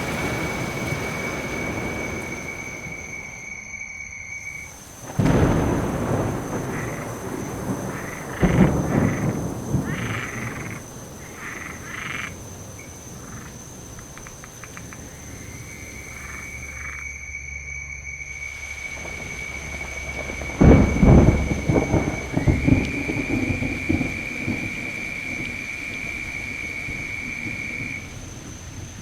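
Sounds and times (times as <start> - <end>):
thunder cracks: 0.0 - 3.7, 4.4 - 17.0, 18.3 - 29.0
frogs croaking: 0.0 - 29.0
steady rain: 0.0 - 29.0.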